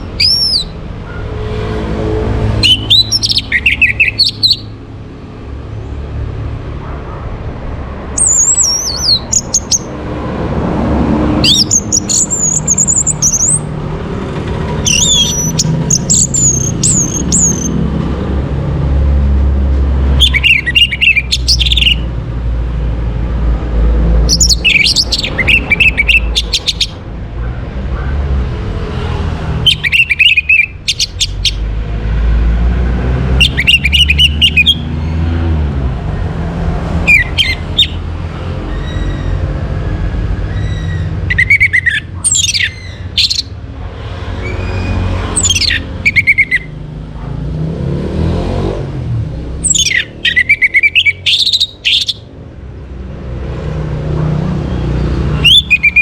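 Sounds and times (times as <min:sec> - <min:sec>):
thrush singing: 0:00.0 - 0:04.8, 0:08.1 - 0:18.2, 0:19.8 - 0:22.2, 0:24.1 - 0:27.2, 0:28.8 - 0:31.8, 0:33.0 - 0:35.4, 0:36.9 - 0:38.2, 0:41.1 - 0:46.8, 0:49.6 - 0:52.3, 0:54.7 - 0:56.0.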